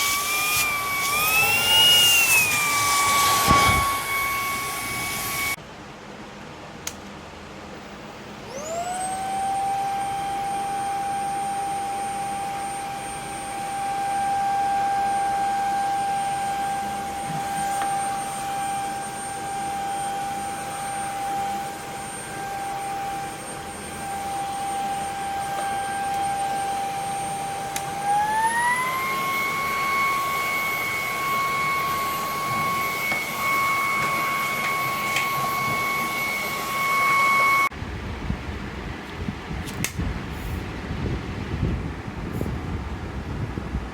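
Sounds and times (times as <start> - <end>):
vacuum motor whine: 0.0 - 5.6, 8.3 - 37.8.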